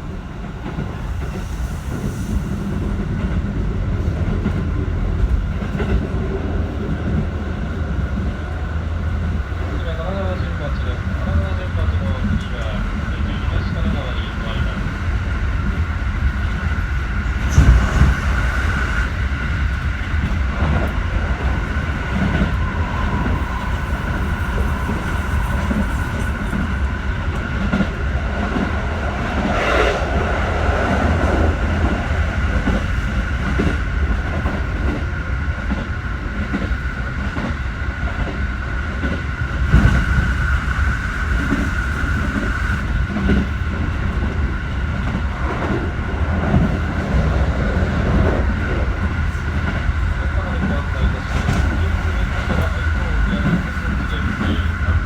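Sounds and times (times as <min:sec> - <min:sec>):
electric train whine: 0:00.0 - 0:55.0
low rumble: 0:14.6 - 0:35.1.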